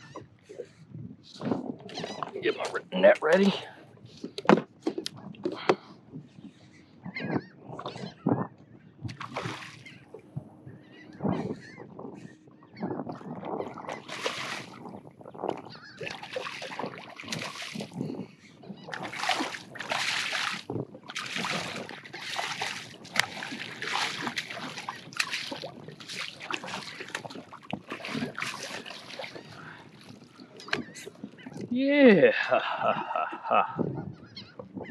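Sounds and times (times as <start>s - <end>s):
fish splashing in water: 9.1s - 10.1s, 13.6s - 18.0s, 18.8s - 31.0s.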